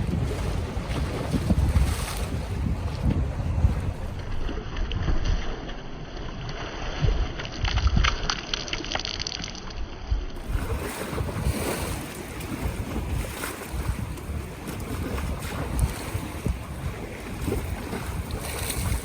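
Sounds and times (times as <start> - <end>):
wind buffeting microphone: 0.0 - 5.6, 10.4 - 19.0
lake waves lapping: 0.0 - 7.7, 10.4 - 19.0.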